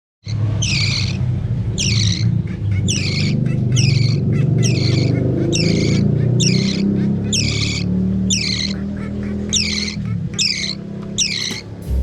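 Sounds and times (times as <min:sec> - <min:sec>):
chick raspy begging calls: 0:00.3 - 0:12.0
steady low hum: 0:11.5 - 0:12.0.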